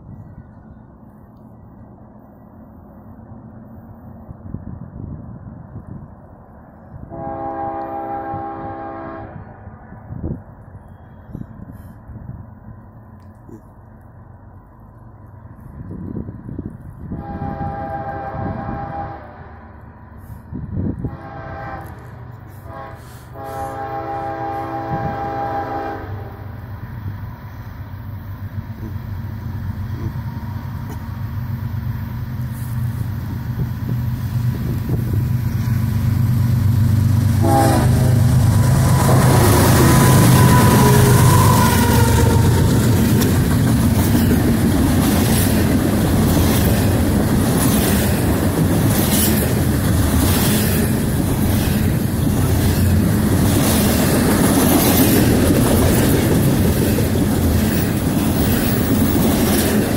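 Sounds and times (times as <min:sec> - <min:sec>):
train horn blasts: 0:07.1 - 0:09.6, 0:17.1 - 0:19.8, 0:21.0 - 0:26.5, 0:37.4 - 0:43.2
wheels clattering on rails: 0:38.5 - 0:59.9.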